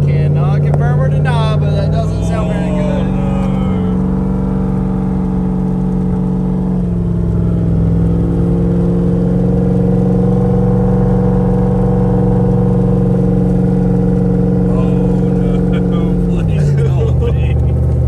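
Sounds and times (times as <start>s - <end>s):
car engine running: 0.0s - 18.0s
engine knocking noise: 4.0s - 18.0s.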